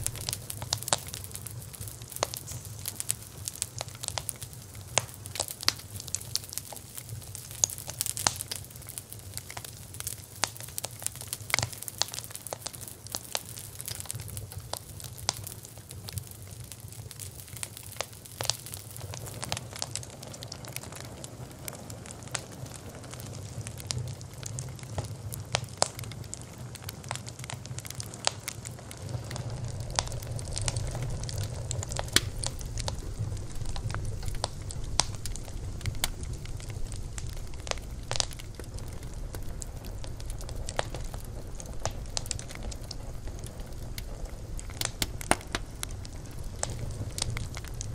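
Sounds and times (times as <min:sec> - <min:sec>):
low rumble of flames: 0:00.0 - 0:47.9
wood crackling and popping: 0:00.0 - 0:47.9.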